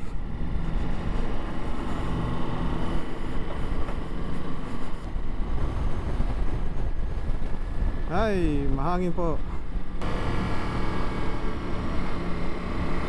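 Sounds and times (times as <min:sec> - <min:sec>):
motorcycle engine cruising: 0:00.0 - 0:08.1, 0:09.8 - 0:13.0
wind rumbling on microphone: 0:00.0 - 0:13.0.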